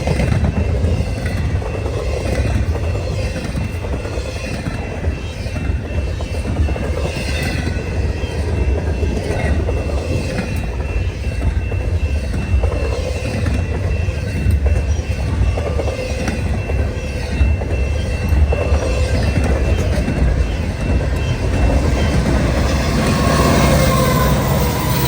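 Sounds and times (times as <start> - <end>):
train wheels rumbling on rail: 0.0 - 25.0
high-pitched squeal: 20.5 - 25.0.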